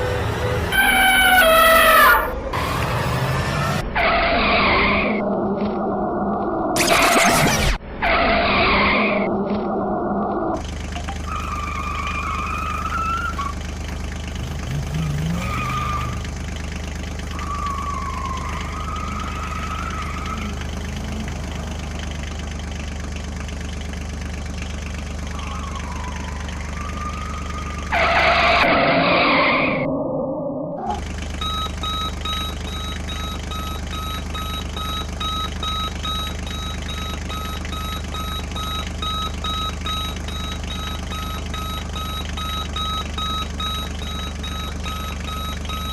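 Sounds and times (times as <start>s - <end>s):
engine hum with gliding whines: 0.0s - 45.9s
reversing beeper beeping: 31.4s - 45.9s.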